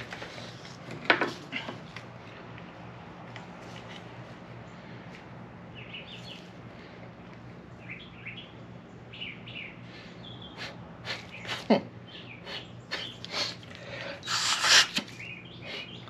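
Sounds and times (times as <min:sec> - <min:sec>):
faint steady hum: 0:00.0 - 0:16.0
small birds chirping: 0:05.7 - 0:16.0
man sniffing: 0:10.6 - 0:11.7, 0:12.4 - 0:15.0.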